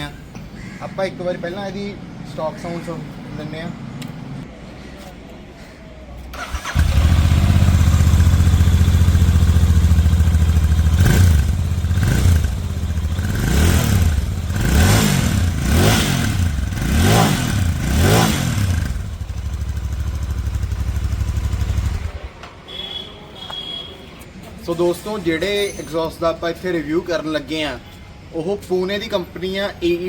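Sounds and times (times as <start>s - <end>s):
motorcycle engine idling and revving: 6.4s - 22.4s.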